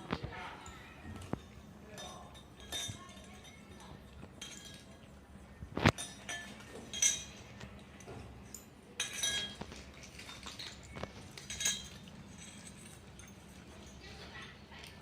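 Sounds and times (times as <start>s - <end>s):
dish clinking: 1.1s - 5.1s, 5.9s - 15.0s
cat eating: 9.7s - 15.0s.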